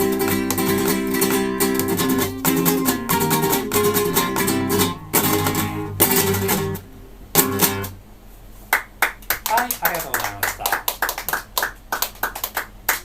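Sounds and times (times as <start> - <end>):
acoustic guitar strummed chords: 0.0 - 8.0.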